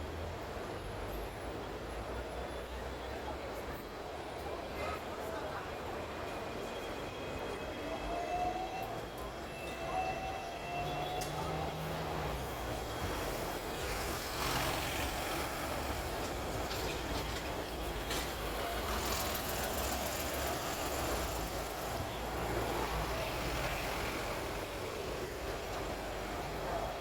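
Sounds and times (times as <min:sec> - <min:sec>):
electric tram rumbling on rails: 0:00.0 - 0:27.0
tram clicks and rattles: 0:15.4 - 0:22.0.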